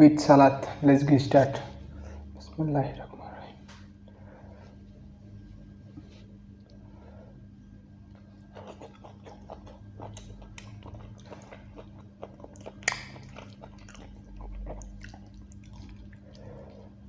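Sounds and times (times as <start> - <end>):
low steady hum: 0.0 - 17.0
wet chewing mouth clicks: 8.1 - 17.0
crunchy bite: 8.5 - 16.2.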